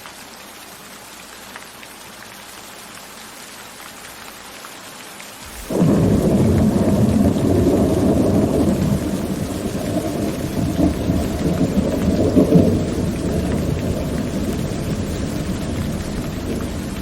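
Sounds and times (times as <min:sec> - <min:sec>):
steady rain: 0:00.0 - 0:17.0
deep rumble of thunder: 0:05.5 - 0:17.0.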